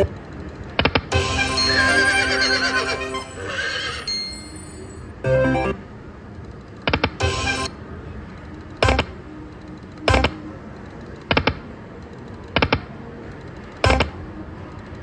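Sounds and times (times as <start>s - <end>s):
slot machine chimes and clicks: 1.1s - 5.8s, 7.2s - 7.7s, 8.8s - 9.2s, 10.1s - 10.4s, 13.8s - 14.2s.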